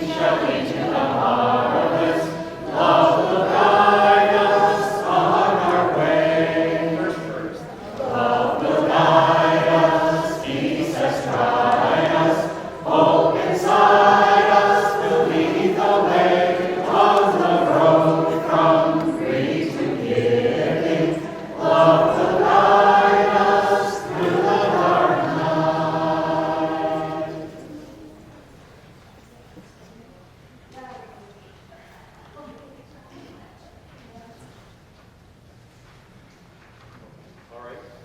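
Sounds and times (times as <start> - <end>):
vocal group singing: 0.0 - 28.2.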